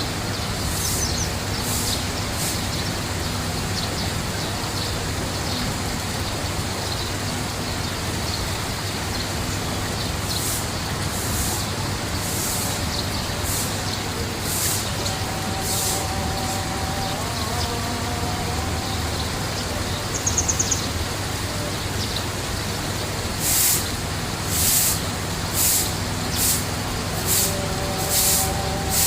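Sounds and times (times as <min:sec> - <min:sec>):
water rushing: 0:00.0 - 0:29.0
hissy swells: 0:10.4 - 0:20.2, 0:23.3 - 0:29.0
low hum: 0:14.8 - 0:20.2.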